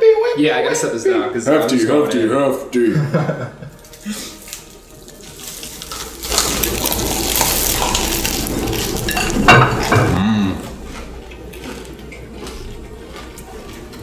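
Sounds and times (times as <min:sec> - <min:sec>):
sandwich crunching and chewing: 0:03.7 - 0:14.0
plates clinking: 0:07.8 - 0:10.2
person humming: 0:10.0 - 0:10.9.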